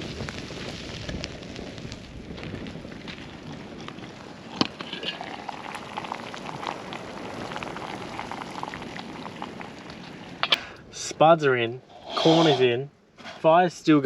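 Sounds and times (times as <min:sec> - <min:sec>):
campfire crackling and hissing: 0:00.0 - 0:13.6
liquid simmering: 0:02.6 - 0:10.8.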